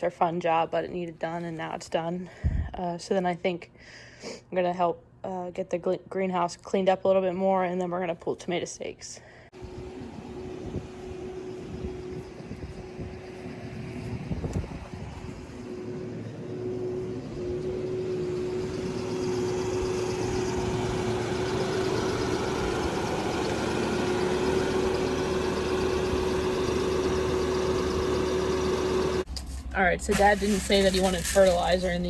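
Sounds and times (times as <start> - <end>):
engine running: 9.5 - 32.0.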